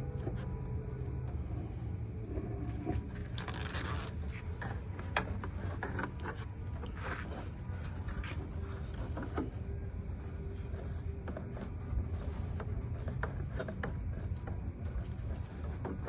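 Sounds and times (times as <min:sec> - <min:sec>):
steady low hum: 0:00.0 - 0:16.0
hands scraping and rustling: 0:02.8 - 0:09.5.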